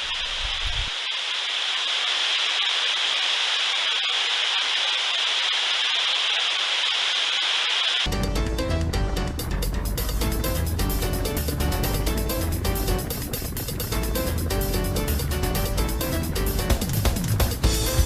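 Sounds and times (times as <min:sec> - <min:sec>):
music: 0:08.1 - 0:18.0.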